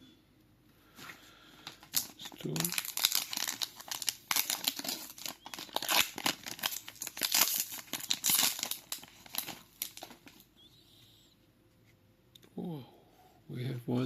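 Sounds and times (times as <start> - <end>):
plastic wrapper tearing and crinkling: 1.6 - 10.4.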